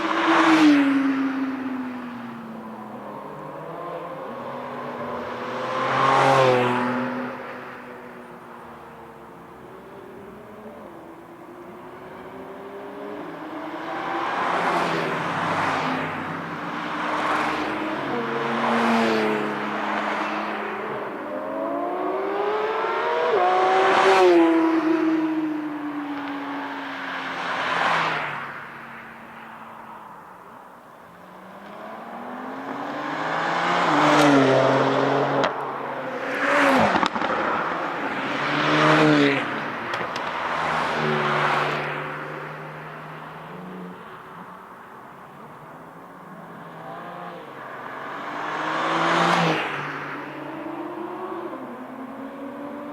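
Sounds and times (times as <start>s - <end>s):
race car engine passing loudly: 0.0s - 30.4s, 31.2s - 52.9s.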